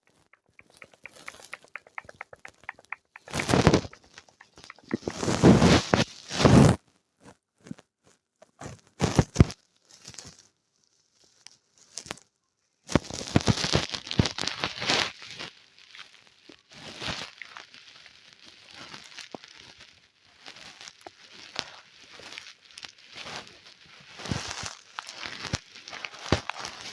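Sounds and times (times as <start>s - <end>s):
rustling handling noise: 0.0s - 6.8s, 18.8s - 26.9s
calculator keys clicking: 0.4s - 5.4s.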